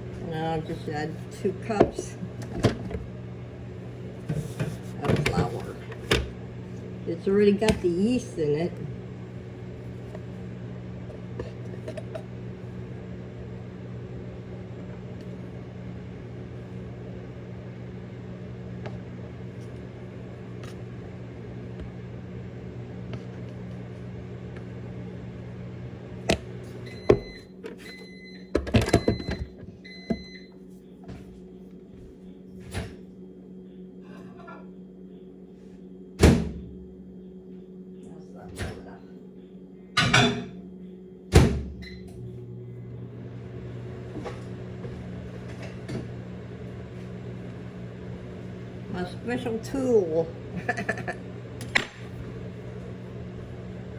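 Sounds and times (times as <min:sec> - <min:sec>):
microwave oven humming: 0:00.0 - 0:53.9
microwave clicks: 0:05.0 - 0:08.0, 0:26.0 - 0:30.4, 0:50.8 - 0:53.9.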